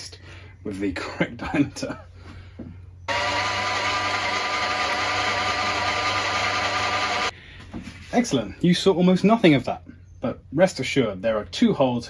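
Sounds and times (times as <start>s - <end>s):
milling machine drilling whine: 3.1s - 7.3s.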